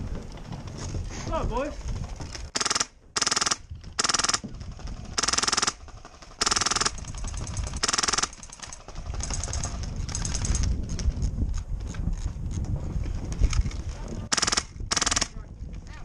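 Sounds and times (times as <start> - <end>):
airsoft gun firing bursts: 2.5 - 10.6, 14.3 - 15.3.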